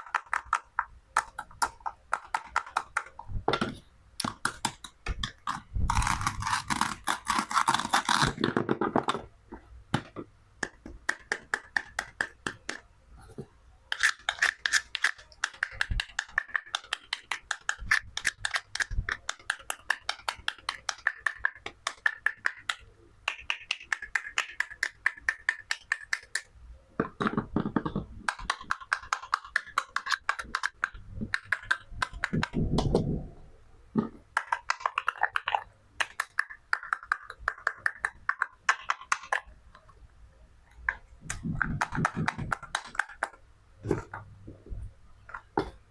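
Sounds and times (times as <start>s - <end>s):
plastic toy clicks and taps: 0.0s - 5.6s, 13.9s - 33.0s, 34.4s - 39.9s, 40.9s - 43.4s.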